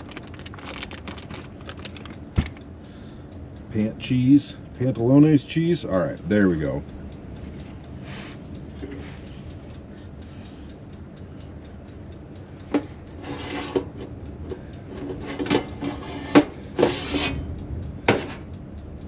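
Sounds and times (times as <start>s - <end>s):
baking tray scraping: 13.2s - 14.0s, 15.0s - 17.4s, 18.1s - 18.5s.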